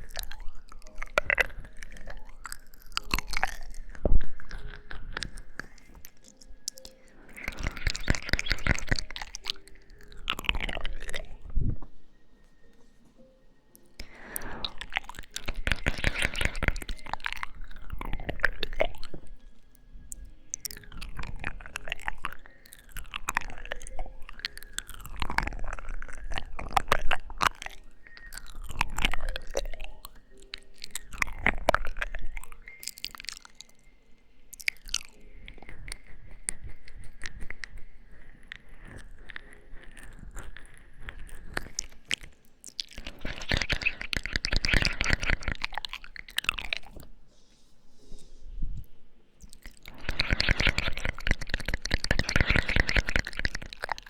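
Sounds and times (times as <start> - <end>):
wet lip smacks and kisses: 0.0 - 11.4, 14.0 - 19.2, 40.1 - 47.1, 49.4 - 54.0.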